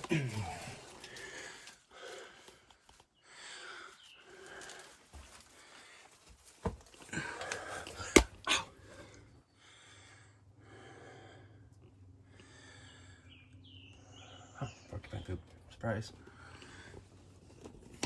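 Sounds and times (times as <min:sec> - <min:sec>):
person breathing heavily: 0:03.2 - 0:06.1, 0:07.1 - 0:13.4.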